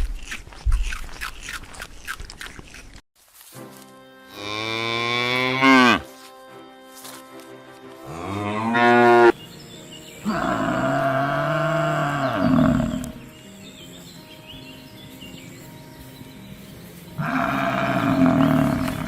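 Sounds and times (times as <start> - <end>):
cow mooing: 4.4 - 6.0, 8.1 - 9.4, 10.2 - 13.2, 17.2 - 19.0.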